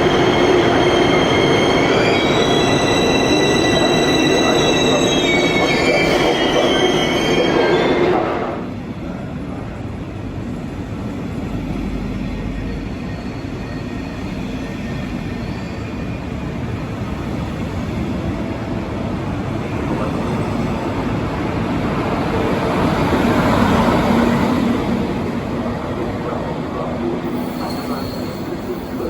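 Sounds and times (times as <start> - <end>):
train rumbling on rails: 0.0 - 29.0.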